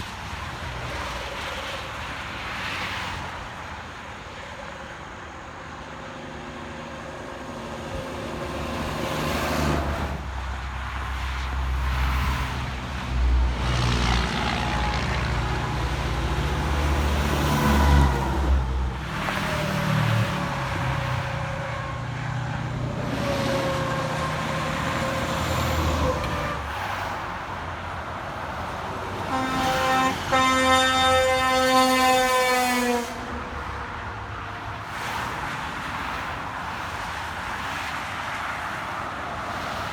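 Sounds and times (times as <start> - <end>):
truck air horn: 13.6 - 27.1, 29.2 - 33.8.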